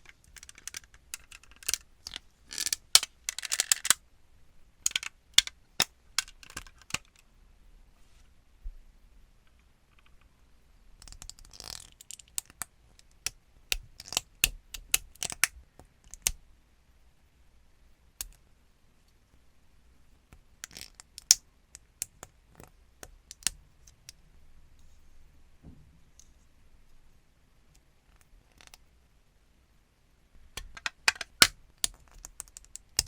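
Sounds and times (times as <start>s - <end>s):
plastic parts clicking and snapping: 0.0s - 4.0s, 4.8s - 7.2s, 13.2s - 16.4s, 30.5s - 33.0s.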